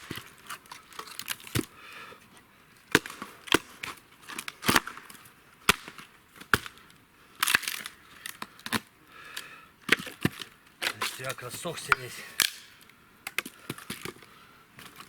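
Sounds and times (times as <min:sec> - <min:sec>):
dry wood cracking: 0:04.2 - 0:15.0.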